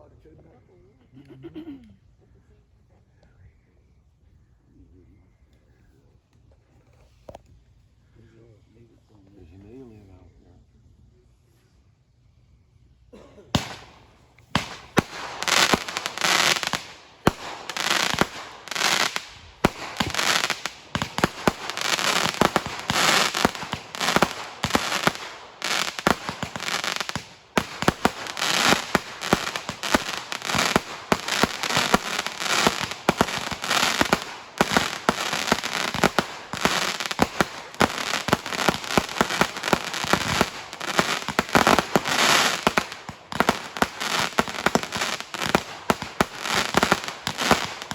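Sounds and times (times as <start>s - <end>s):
fireworks bangs and crackling: 13.6s - 47.9s.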